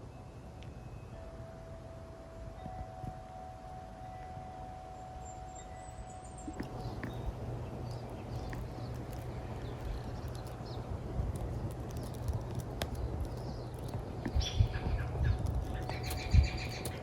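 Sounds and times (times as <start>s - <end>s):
steady low rumble: 1.8s - 17.0s
light clicks: 6.5s - 17.0s.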